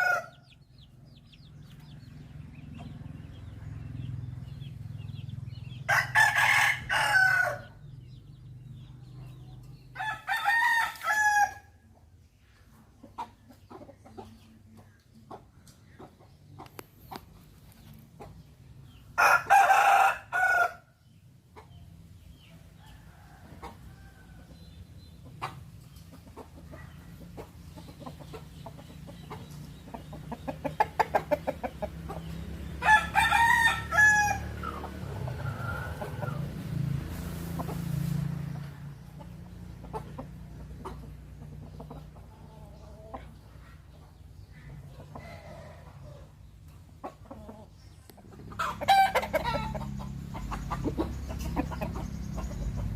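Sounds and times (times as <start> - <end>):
rooster crowing: 0.0 - 0.4, 5.9 - 7.8, 10.0 - 11.7, 19.2 - 20.9, 32.8 - 36.4
chickens clucking: 0.0 - 11.0, 11.8 - 52.9.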